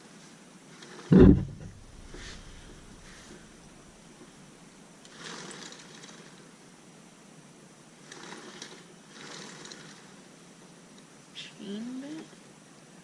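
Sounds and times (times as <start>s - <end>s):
mechanical scraping on wheel: 1.1s - 4.0s, 8.1s - 10.1s.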